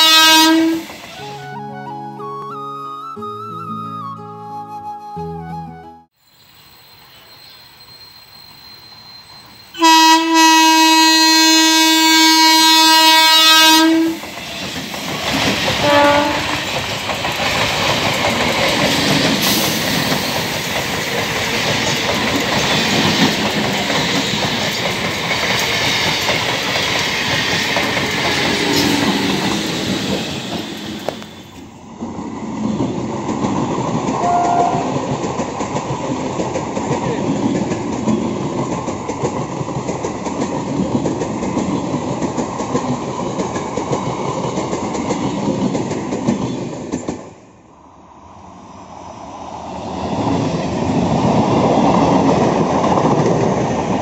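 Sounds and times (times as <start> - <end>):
train horn blast: 0.0 - 1.6, 9.8 - 14.2, 15.8 - 16.6, 34.2 - 35.0
train wheels clattering on rails: 13.9 - 47.4, 50.1 - 54.0.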